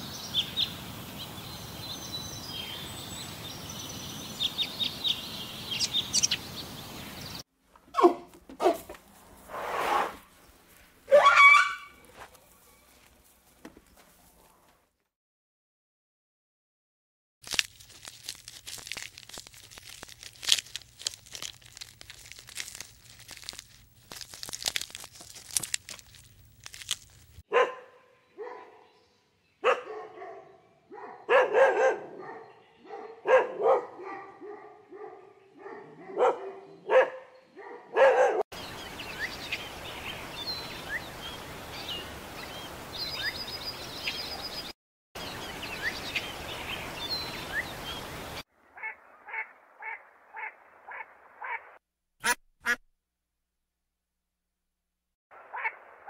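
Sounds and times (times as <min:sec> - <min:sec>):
birds chirping: 0:00.0 - 0:07.4, 0:27.5 - 0:51.6
dog barking: 0:07.9 - 0:08.9, 0:11.1 - 0:11.9, 0:27.5 - 0:28.9, 0:29.6 - 0:38.4
donkey chewing fodder: 0:17.4 - 0:27.4.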